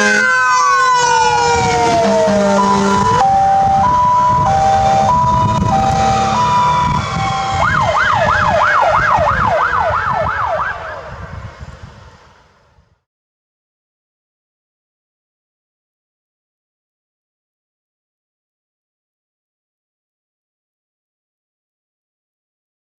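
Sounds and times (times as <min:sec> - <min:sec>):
truck engine rumble: 0:00.0 - 0:12.8
fire engine siren: 0:00.0 - 0:12.9.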